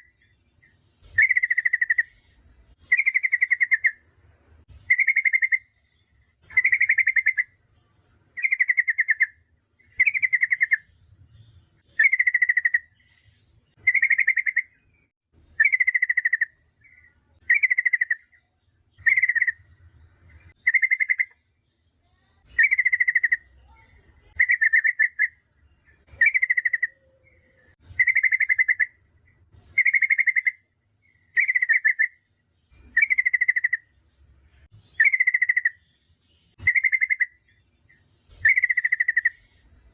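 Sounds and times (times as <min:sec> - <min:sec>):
bulbul calling: 0:00.0 - 0:39.9.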